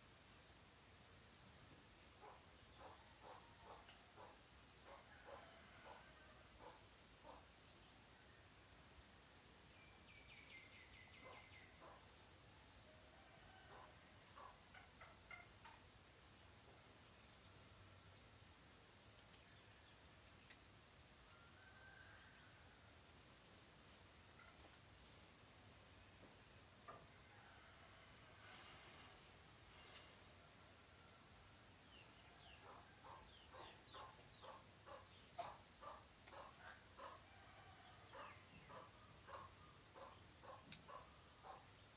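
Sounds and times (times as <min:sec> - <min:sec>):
cricket trilling: 0:09.8 - 0:25.4, 0:31.8 - 0:41.8.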